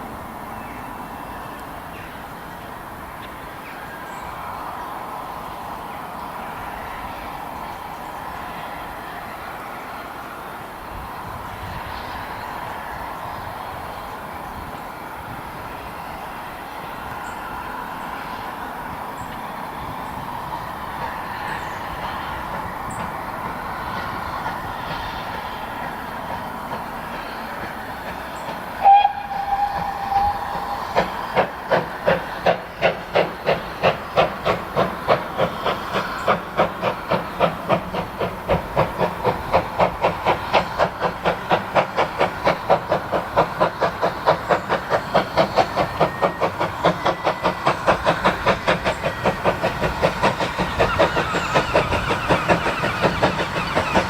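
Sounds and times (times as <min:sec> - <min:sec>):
steam hiss: 0:00.0 - 0:54.0
locomotive exhaust chuffs: 0:28.4 - 0:54.0
steam locomotive whistle: 0:28.8 - 0:31.4, 0:45.5 - 0:49.4.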